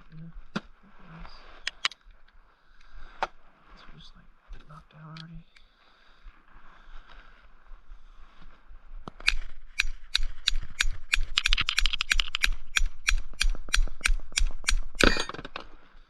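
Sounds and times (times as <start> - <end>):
ratchet wrench clicking: 9.2 - 15.2.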